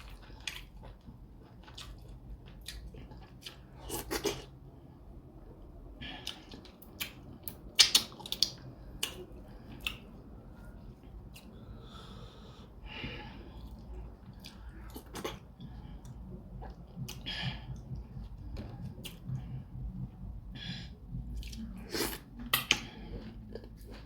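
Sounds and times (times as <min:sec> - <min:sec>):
mouth smacking and chewing: 0:00.0 - 0:04.6, 0:06.1 - 0:10.3, 0:13.5 - 0:20.2, 0:21.1 - 0:24.0
noisy breath: 0:08.7 - 0:23.5.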